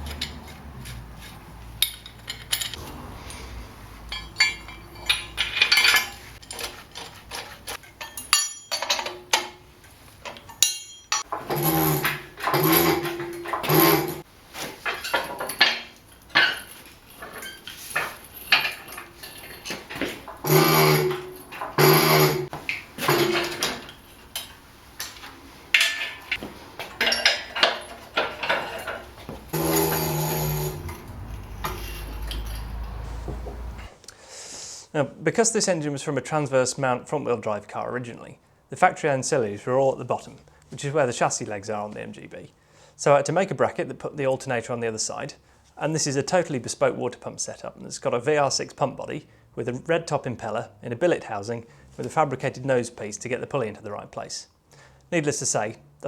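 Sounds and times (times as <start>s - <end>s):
metal tools clinking: 0.0s - 33.2s.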